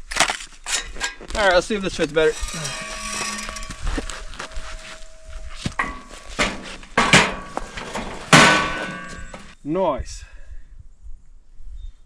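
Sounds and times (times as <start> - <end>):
steel parts clanking together: 0.7 - 9.6.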